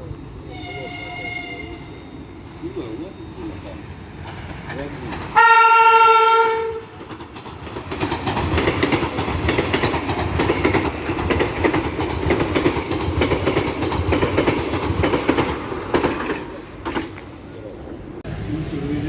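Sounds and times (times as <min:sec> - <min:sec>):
train wheels clattering over rails: 0:03.4 - 0:17.4.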